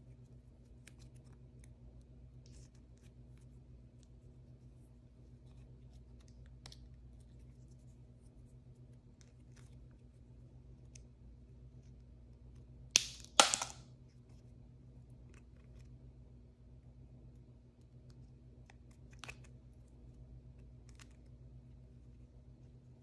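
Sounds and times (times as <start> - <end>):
sharp loud snaps: 13.0 - 13.8.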